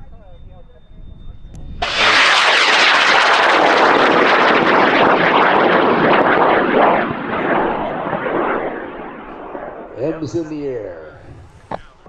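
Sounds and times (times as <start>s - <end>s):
rocket motor roaring with crackle: 1.8s - 10.4s.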